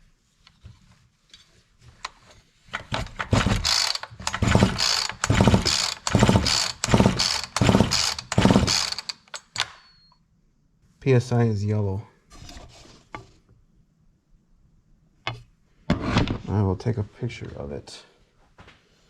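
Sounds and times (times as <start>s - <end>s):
chainsaw recoil starter cranking: 3.2s - 9.8s.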